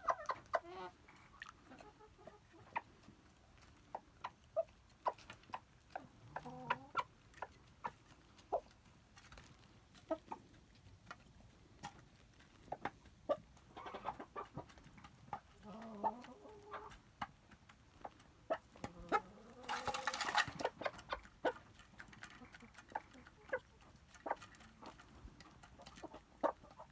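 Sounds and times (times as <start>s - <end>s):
chickens clucking: 0.0s - 26.9s.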